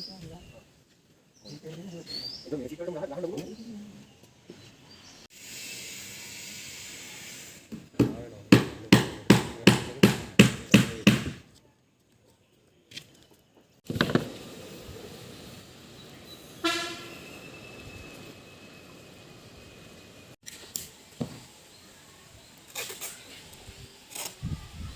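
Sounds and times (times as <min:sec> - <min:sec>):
short horn-like toot: 0:16.6 - 0:17.6.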